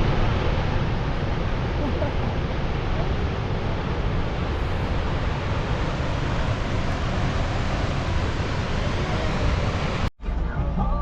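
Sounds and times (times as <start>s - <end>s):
waterfall rushing: 0.0s - 10.1s
wind buffeting microphone: 0.0s - 10.1s.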